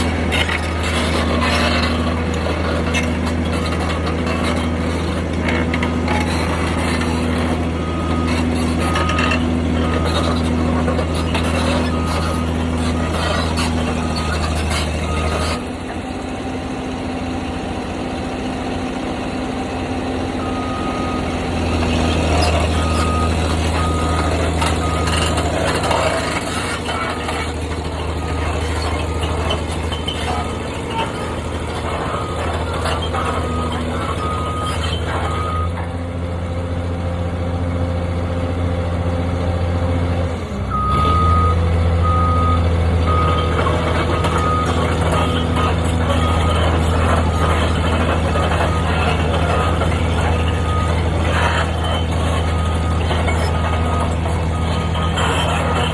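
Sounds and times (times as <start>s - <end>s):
heavy machine engine running: 0.0s - 55.9s
reversing alarm beeping: 6.0s - 15.6s, 20.4s - 35.8s, 40.7s - 55.9s.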